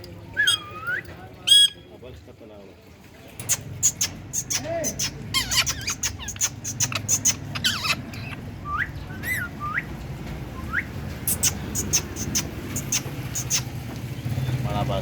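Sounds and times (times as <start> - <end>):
parrot whistling: 0.4 - 1.8, 3.8 - 9.9, 10.6 - 13.7
parrot clicks and chirps: 3.4 - 8.4, 11.2 - 13.7.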